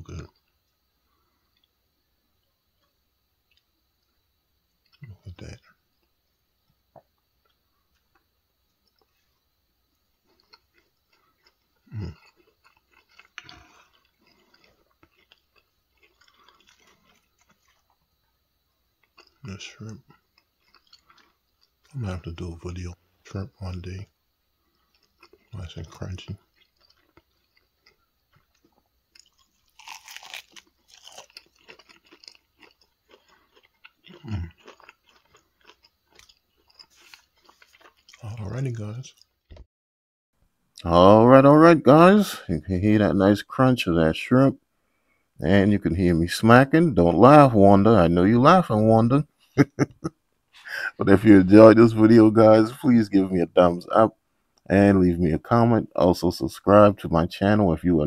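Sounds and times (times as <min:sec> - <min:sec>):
person chewing and smacking: 0:10.2 - 0:18.0, 0:19.0 - 0:21.9, 0:24.7 - 0:39.6.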